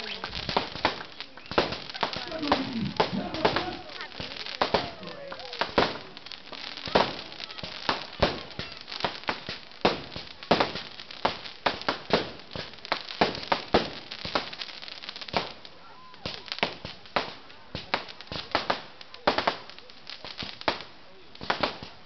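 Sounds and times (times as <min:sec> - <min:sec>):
fireworks bangs and pops: 0:00.0 - 0:22.0.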